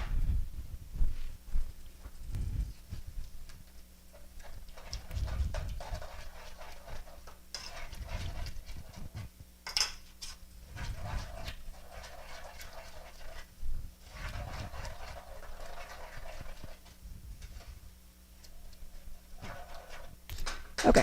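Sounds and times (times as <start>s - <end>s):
spoon scraping in saucepan: 4.1s - 20.6s.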